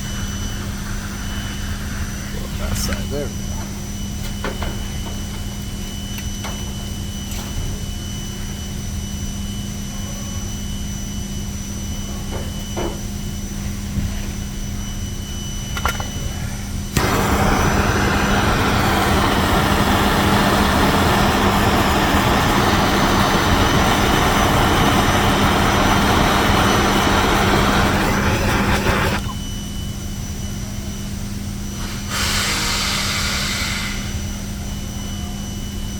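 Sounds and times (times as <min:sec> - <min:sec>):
electric hum: 0:16.8 - 0:30.0
hot-air tool rushing: 0:16.9 - 0:29.4.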